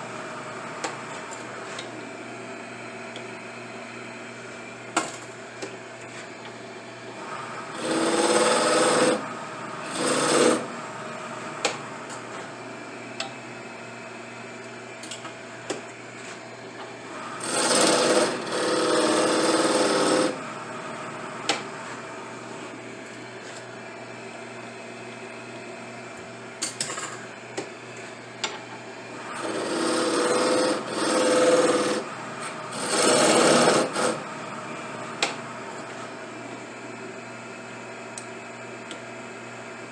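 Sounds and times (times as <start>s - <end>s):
steady background hum: 0.0s - 39.9s
small power tool running: 7.2s - 10.8s, 17.1s - 20.5s, 29.2s - 34.2s.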